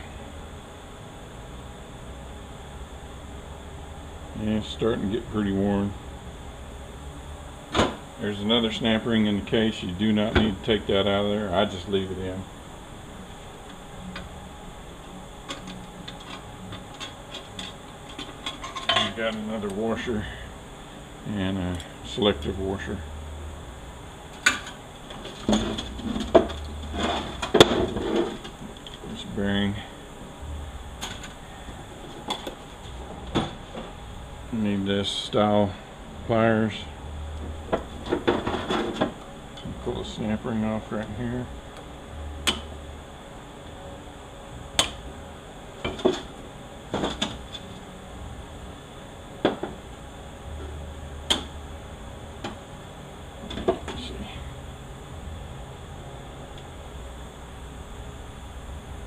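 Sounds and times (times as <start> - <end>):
metal scraping and rattling: 24.6 - 28.5.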